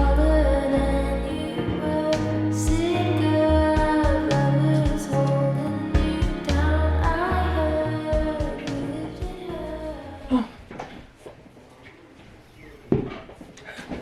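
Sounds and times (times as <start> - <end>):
pop music with female singer: 0.0 - 10.5.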